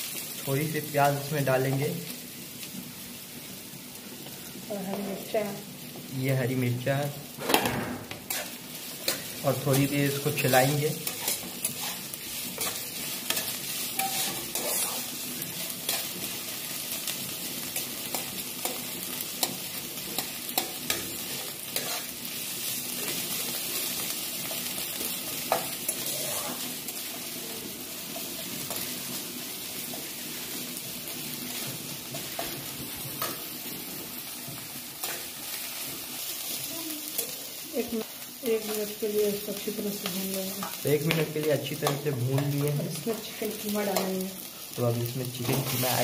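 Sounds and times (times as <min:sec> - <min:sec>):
onions sizzling in hot oil: 0:00.0 - 0:46.0
metal spatula scraping pan: 0:07.5 - 0:16.2, 0:20.1 - 0:22.2, 0:25.5 - 0:26.8.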